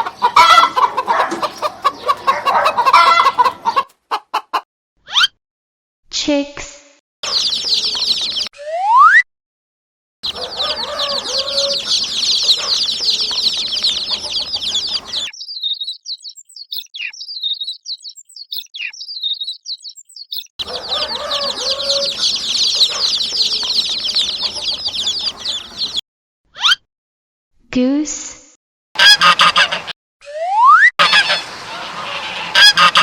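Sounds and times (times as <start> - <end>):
chicks peeping: 0.0 - 4.6, 7.2 - 8.5, 10.2 - 26.0.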